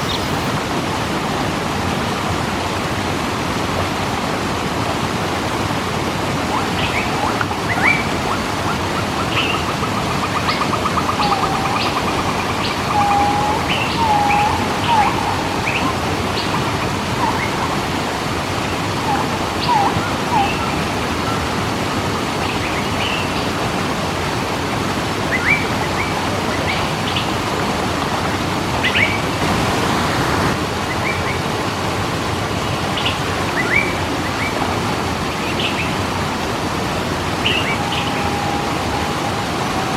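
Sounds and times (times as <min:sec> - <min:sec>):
birds chirping: 0:00.0 - 0:00.5, 0:06.5 - 0:24.6, 0:32.6 - 0:39.9
waterfall rushing: 0:00.0 - 0:39.9
bird trilling: 0:06.5 - 0:21.5
low whistled bird notes: 0:06.5 - 0:21.6, 0:37.4 - 0:39.9.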